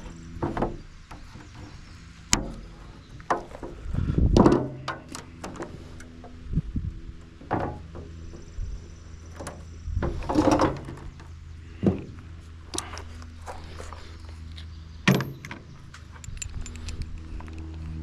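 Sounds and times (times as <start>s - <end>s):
knocks and clunks: 0.4s - 5.8s, 7.4s - 8.5s, 9.4s - 12.2s.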